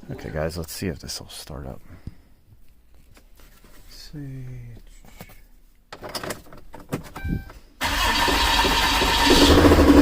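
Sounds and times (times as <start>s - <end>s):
diesel engine running: 7.8s - 10.0s
starter cranking diesel engine: 7.8s - 10.0s.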